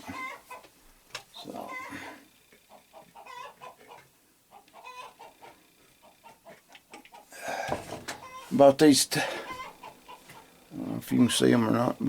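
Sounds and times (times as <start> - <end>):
bird clucking: 0.0 - 0.7, 1.6 - 2.1, 2.7 - 7.3, 8.1 - 8.5, 9.4 - 10.6.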